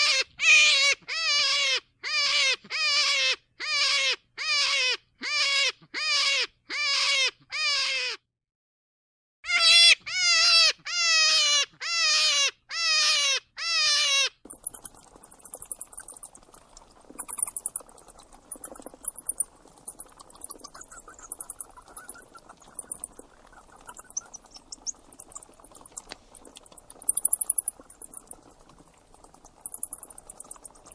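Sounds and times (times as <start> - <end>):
insects chirping in trills: 14.5 - 30.9.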